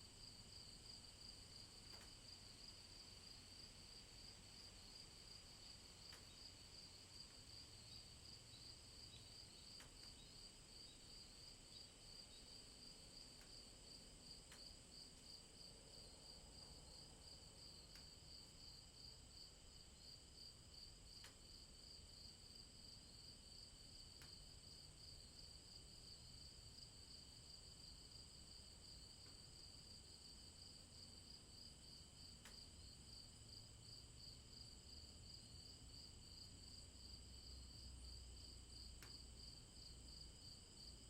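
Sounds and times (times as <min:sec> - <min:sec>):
faint ticks: 0:01.3 - 0:02.7, 0:06.0 - 0:06.5, 0:07.2 - 0:10.9, 0:12.8 - 0:18.8, 0:21.1 - 0:21.6, 0:23.9 - 0:24.9, 0:28.6 - 0:33.1, 0:37.6 - 0:41.0.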